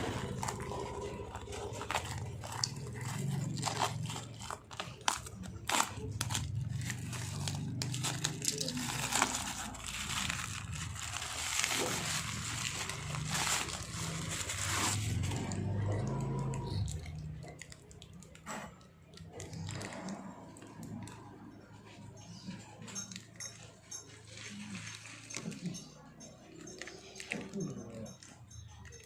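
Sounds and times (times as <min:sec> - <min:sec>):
packaging crinkling: 0:00.0 - 0:18.4.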